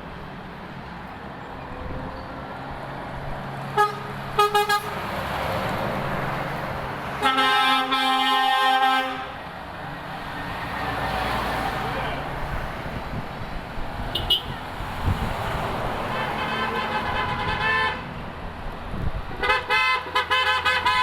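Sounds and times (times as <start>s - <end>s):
trucks running: 0.0s - 21.0s
truck air horn: 3.7s - 5.0s, 7.2s - 9.4s, 14.1s - 14.6s, 16.1s - 18.1s, 19.4s - 21.0s.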